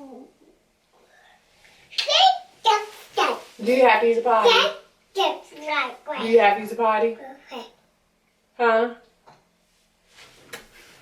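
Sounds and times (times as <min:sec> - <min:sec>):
soft rustling: 0:02.6 - 0:06.3, 0:09.6 - 0:11.0.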